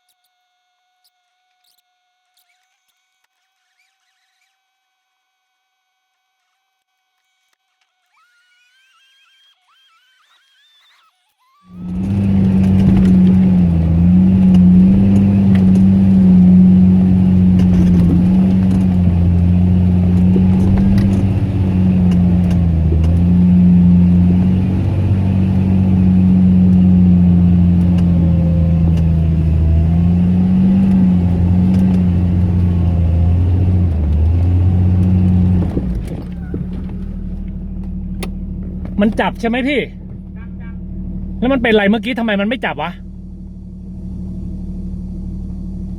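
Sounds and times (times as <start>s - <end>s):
off-road vehicle engine revving: 11.7s - 45.9s.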